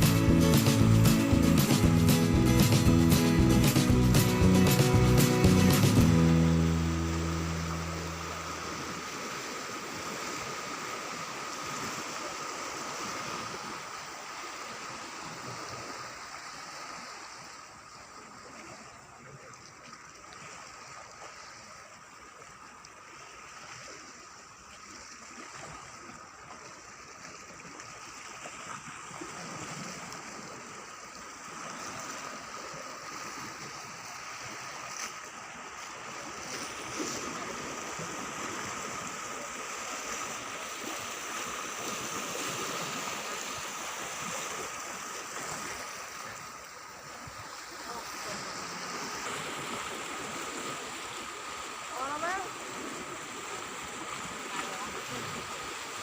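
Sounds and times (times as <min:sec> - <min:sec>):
sea waves washing on shore: 0:00.0 - 0:56.0
faint high whine: 0:06.1 - 0:09.3.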